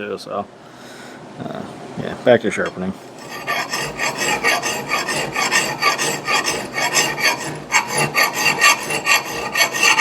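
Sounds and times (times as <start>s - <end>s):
file rasping on axe steel: 3.2s - 10.0s.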